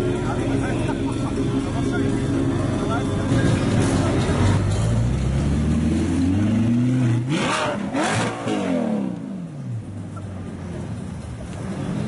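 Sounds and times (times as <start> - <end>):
sports car engine revving: 0.4 - 9.9.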